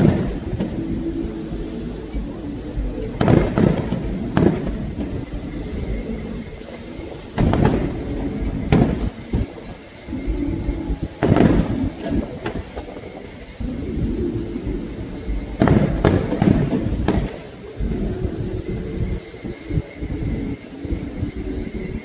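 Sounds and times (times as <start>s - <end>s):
firework shells bursting: 0.0s - 19.2s.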